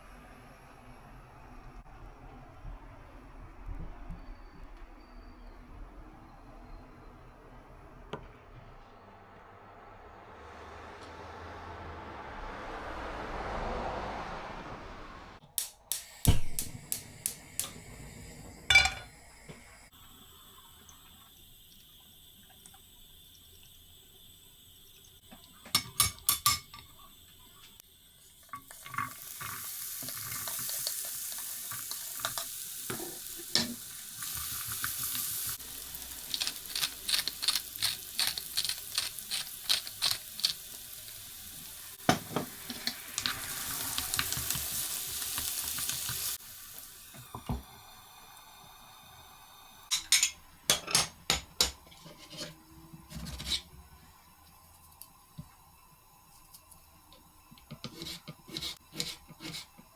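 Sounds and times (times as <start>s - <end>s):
food sizzling in a pan: 16.0s - 59.9s
dishes and utensils clinking: 18.7s - 19.1s, 25.6s - 27.0s, 49.9s - 53.7s
stirring strokes against pan: 51.8s - 53.8s, 57.6s - 59.9s.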